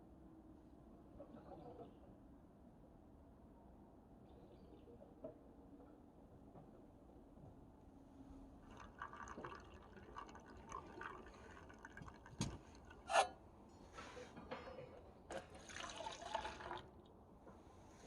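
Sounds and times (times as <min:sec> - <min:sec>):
liquid pouring and dripping: 0:08.6 - 0:13.1, 0:15.3 - 0:17.1.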